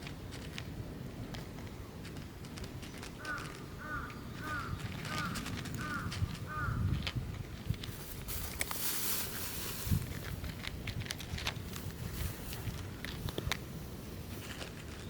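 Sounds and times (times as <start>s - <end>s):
rustle: 0.0s - 15.0s
bird calling: 3.2s - 6.9s.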